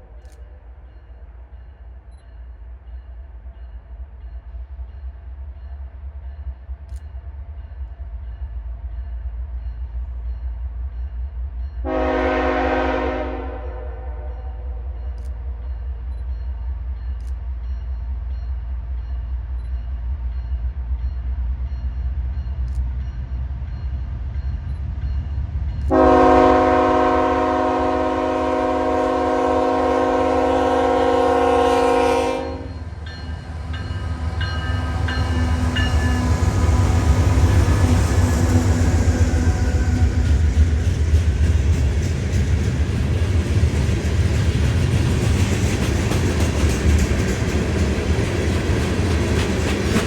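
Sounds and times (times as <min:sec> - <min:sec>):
diesel locomotive rumbling: 0:00.0 - 0:50.0
train air horn blast: 0:11.8 - 0:14.6, 0:25.9 - 0:32.8.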